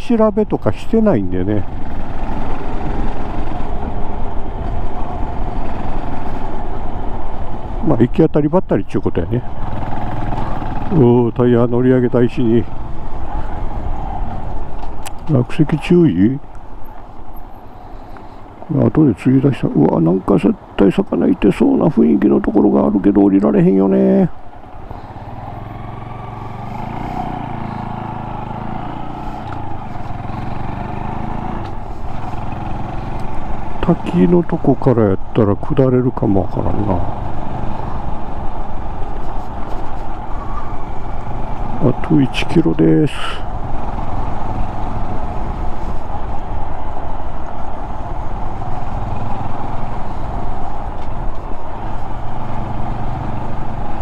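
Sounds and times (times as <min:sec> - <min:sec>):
wind and road noise: 0:00.0 - 0:54.0
motorcycle engine cruising: 0:01.1 - 0:07.8, 0:09.4 - 0:54.0
motorcycle engine running: 0:24.4 - 0:34.0.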